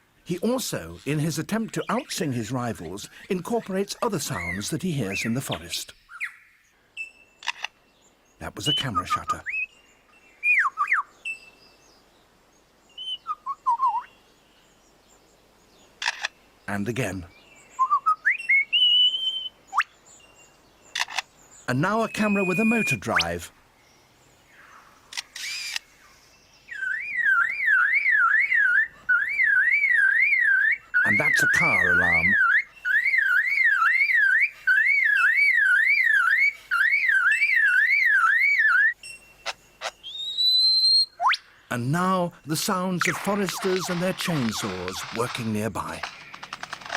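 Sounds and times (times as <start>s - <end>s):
lyrebird singing: 0.0s - 12.2s, 12.8s - 46.9s
sharp clicks: 7.4s - 7.8s, 21.0s - 21.3s, 25.1s - 25.8s, 43.0s - 46.9s
bird mimicking car alarm: 22.0s - 23.4s, 26.8s - 41.4s, 42.6s - 46.6s.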